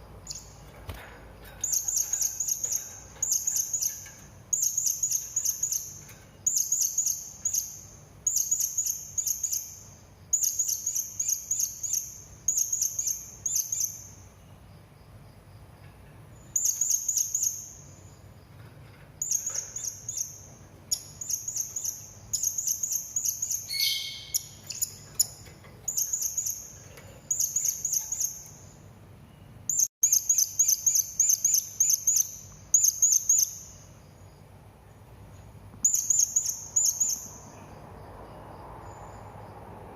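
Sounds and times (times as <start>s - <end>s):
lower bird call: 23.3s - 24.8s
parrot high thin chirps: 23.6s - 25.4s.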